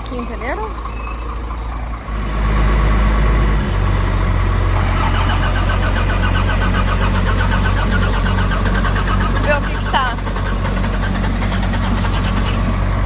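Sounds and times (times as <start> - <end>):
truck engine idling: 0.0 - 13.0
rhythmic clatter: 5.0 - 12.8.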